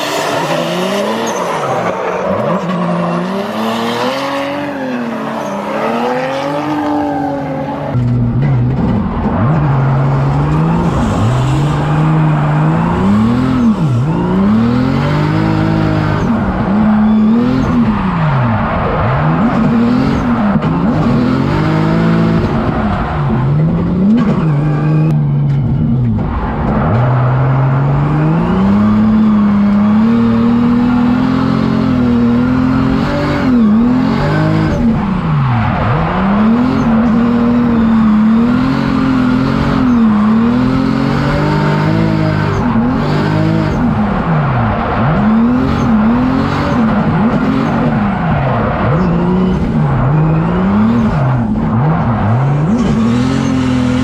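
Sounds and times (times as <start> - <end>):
car engine revving hard: 0.0 - 8.2, 9.3 - 25.1, 27.2 - 54.0.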